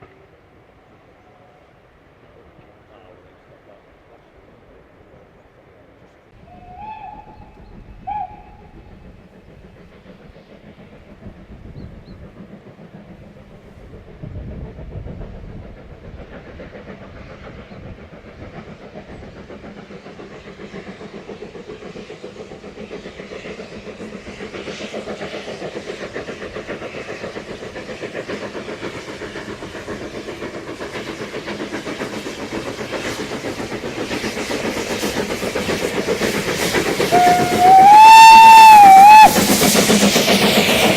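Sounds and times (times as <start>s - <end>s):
steam locomotive whistle toots: 6.4s - 8.9s, 36.5s - 40.9s
steam locomotive running beat: 6.4s - 40.9s.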